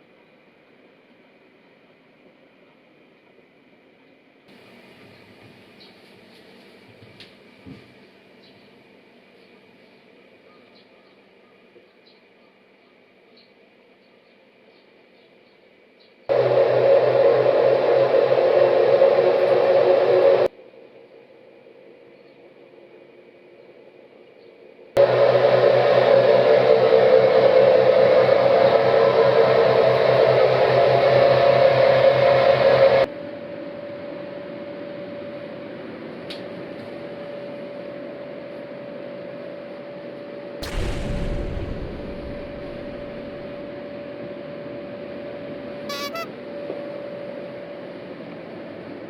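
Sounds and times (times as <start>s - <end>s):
brief high broken tone: 45.9s - 46.3s.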